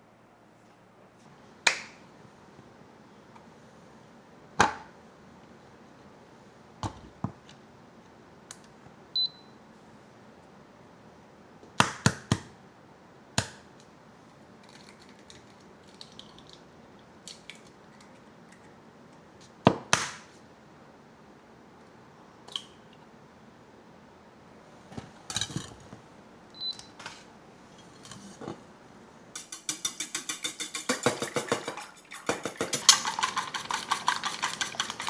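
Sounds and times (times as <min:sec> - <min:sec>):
kitchen knocks and clinks: 0:29.4 - 0:35.0.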